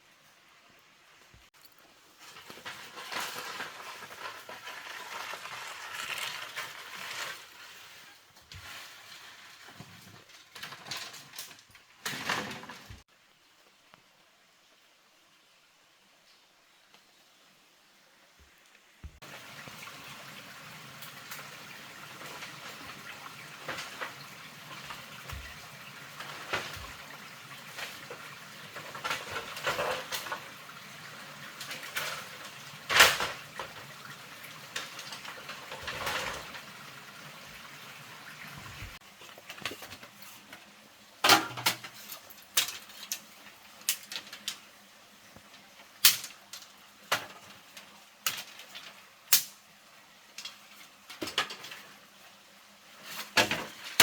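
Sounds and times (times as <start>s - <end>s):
pots and utensils clattering: 2.2s - 7.7s, 8.5s - 13.0s, 22.0s - 36.8s, 41.2s - 44.6s, 50.4s - 52.0s, 53.0s - 54.0s
water running: 19.0s - 40.8s.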